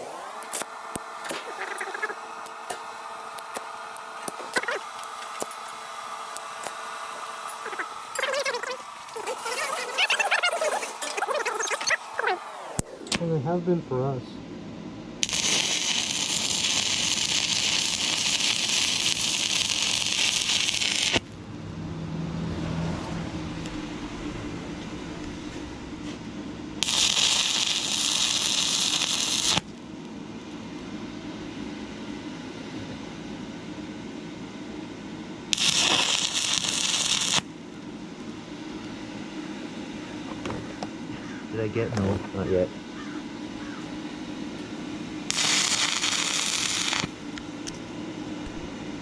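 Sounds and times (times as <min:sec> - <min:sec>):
welding arc crackling and hissing: 0:00.0 - 0:13.6, 0:15.2 - 0:21.5, 0:23.5 - 0:30.0, 0:35.5 - 0:37.5, 0:44.5 - 0:47.8, 0:48.4 - 0:49.0
low hum: 0:04.1 - 0:28.9.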